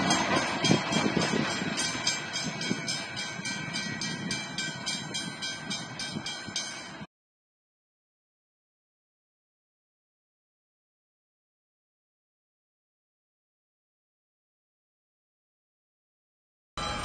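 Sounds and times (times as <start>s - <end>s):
train passing: 0.0s - 7.1s, 16.8s - 17.0s
level crossing bell ringing: 16.8s - 17.0s.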